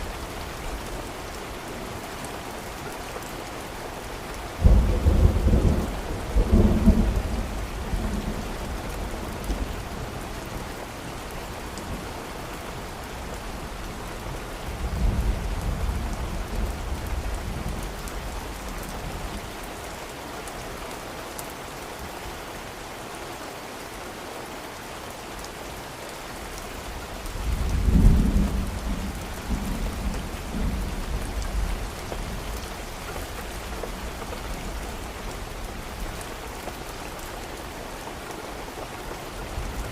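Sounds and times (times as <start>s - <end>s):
steady rain: 0.0s - 39.9s
thunder rumbling: 4.6s - 9.0s, 27.4s - 32.5s.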